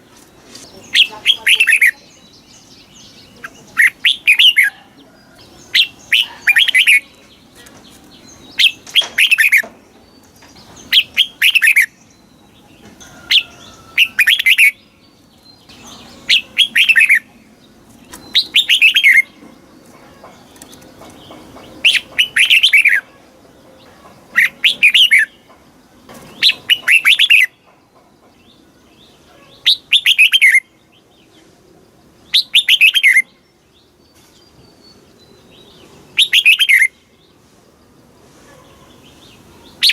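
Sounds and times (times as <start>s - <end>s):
bulbul singing: 0.0s - 37.4s, 38.7s - 39.9s.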